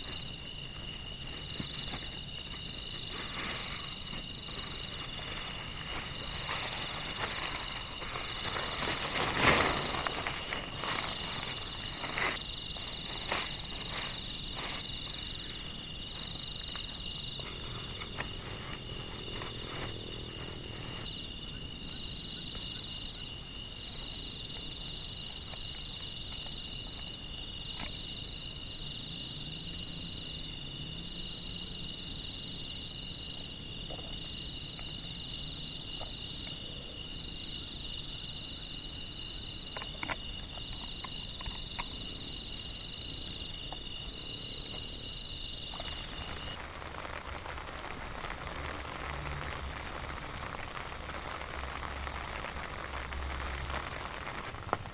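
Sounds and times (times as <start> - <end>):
rain hiss: 0.0 - 54.9.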